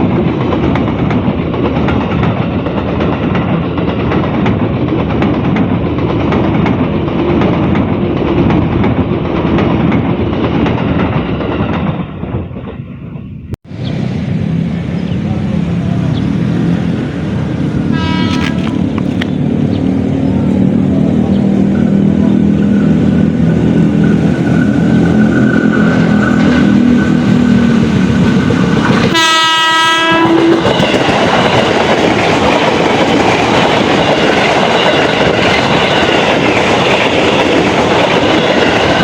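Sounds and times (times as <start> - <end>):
train rail rumble: 0.0 - 39.0
train horn: 17.8 - 18.8, 29.1 - 31.0.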